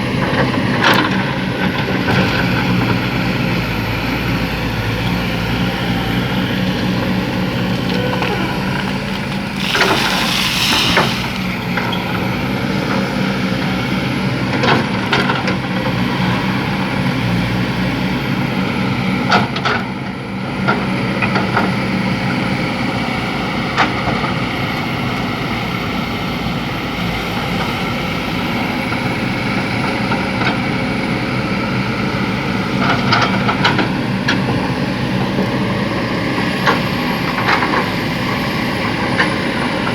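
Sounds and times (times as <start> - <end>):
diesel engine running under load: 0.0 - 39.9
short rush of noise: 9.4 - 11.8.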